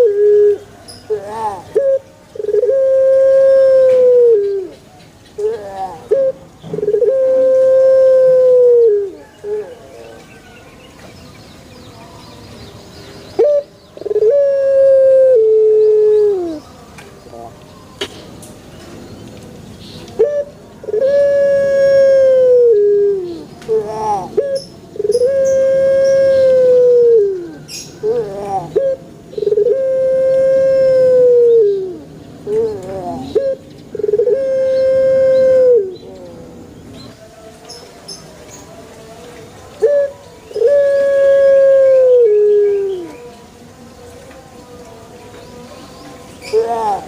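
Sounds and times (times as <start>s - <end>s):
dove cooing: 0.0s - 4.8s, 5.4s - 10.6s, 13.4s - 16.7s, 20.2s - 36.7s, 39.8s - 43.3s, 46.4s - 47.0s
small birds twittering: 27.4s - 29.6s.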